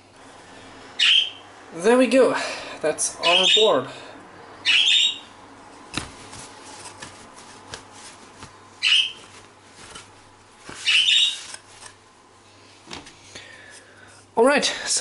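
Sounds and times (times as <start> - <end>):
bird squawking: 1.0 - 1.4, 3.2 - 3.8, 4.6 - 5.4, 8.8 - 9.2, 10.8 - 11.5
towel rubbing: 6.0 - 12.0.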